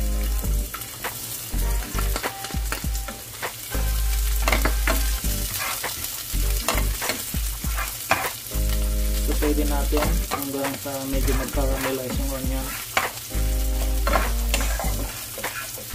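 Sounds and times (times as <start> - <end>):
onion sizzling in oil: 0.0 - 15.9
utensil scraping a pan: 4.4 - 6.0, 6.7 - 8.4, 10.2 - 12.1, 13.8 - 15.9.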